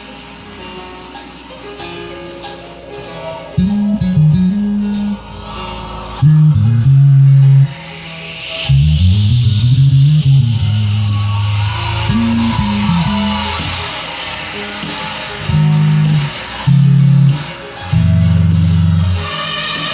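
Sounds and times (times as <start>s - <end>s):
accompanying music: 0.0s - 19.9s
bass guitar with sliding notes: 3.6s - 13.9s, 15.4s - 19.3s
cymbal ticking: 3.6s - 19.2s.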